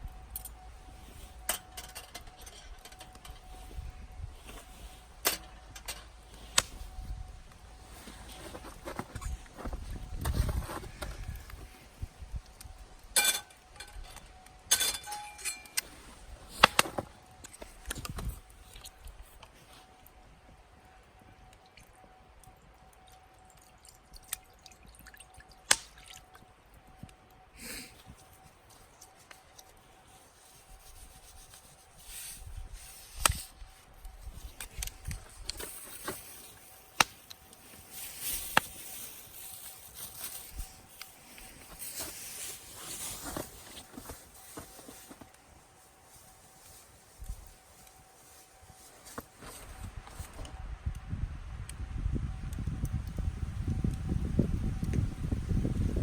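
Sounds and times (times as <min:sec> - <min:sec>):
rubbing and handling noises: 0:00.2 - 0:12.2, 0:27.9 - 0:50.5.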